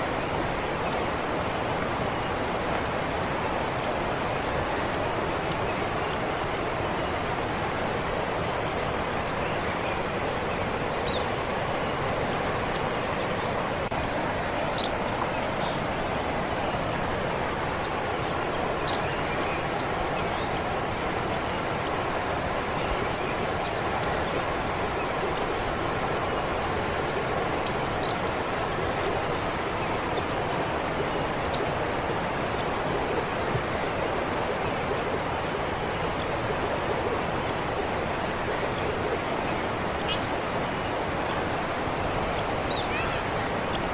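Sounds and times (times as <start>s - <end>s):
stream flowing: 0.0s - 43.9s
small birds chirping: 38.5s - 43.9s.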